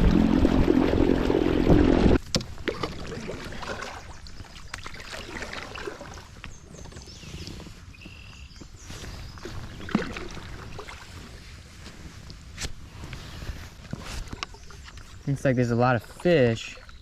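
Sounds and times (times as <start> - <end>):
loud noisy sound: 0.0 - 2.2.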